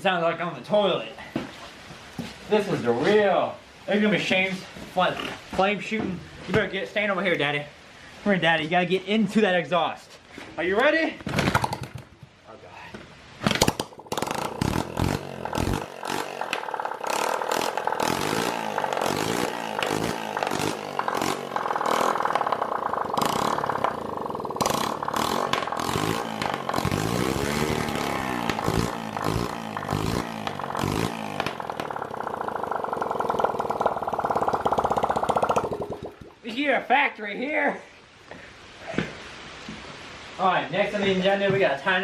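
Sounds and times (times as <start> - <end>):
exhaust crackle: 13.6 - 36.6
dirt bike engine revving: 13.8 - 36.5.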